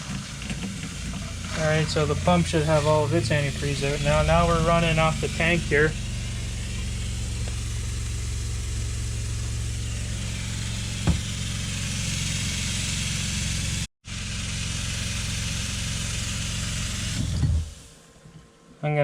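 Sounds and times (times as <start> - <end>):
water hissing from a line: 0.0 - 18.2
water pump humming: 0.0 - 18.2
single knock: 11.0 - 11.3.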